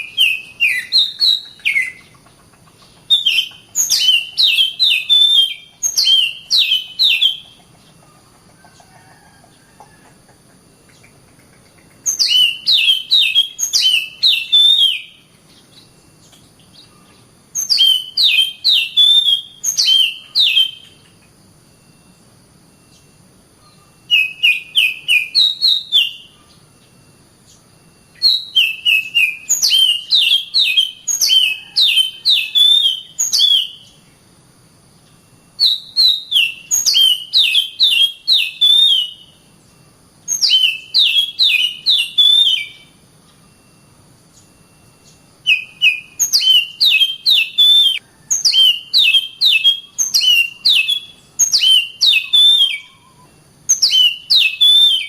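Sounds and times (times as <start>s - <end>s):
bird singing sharp whistled notes: 0.0s - 2.0s, 3.1s - 7.5s, 12.0s - 21.1s, 21.8s - 34.0s, 35.2s - 55.0s.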